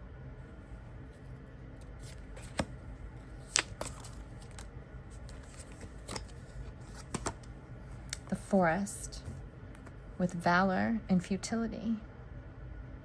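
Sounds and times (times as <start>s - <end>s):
faint room hum: 0.0s - 13.0s
cards being handled: 1.8s - 10.0s.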